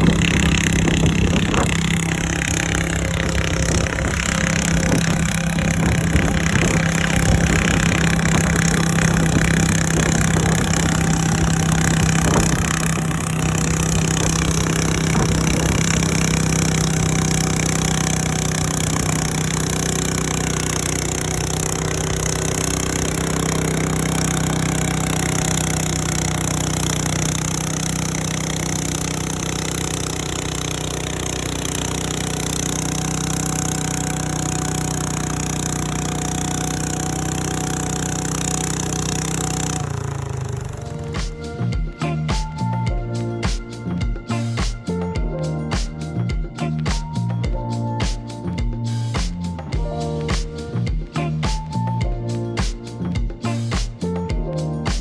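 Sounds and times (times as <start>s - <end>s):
garden tractor engine under load: 0.0s - 55.0s.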